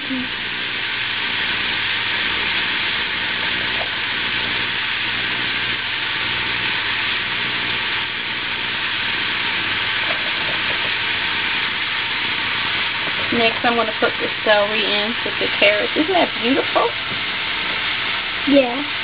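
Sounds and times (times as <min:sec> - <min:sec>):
vegetables sizzling in hot oil: 0:00.0 - 0:19.0.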